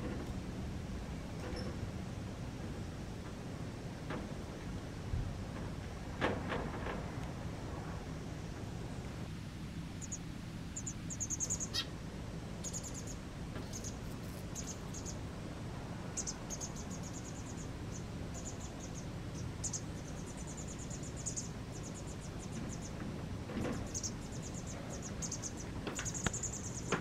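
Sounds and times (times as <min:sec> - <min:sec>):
steady low hum: 0:00.0 - 0:27.0
small birds chirping: 0:09.9 - 0:27.0.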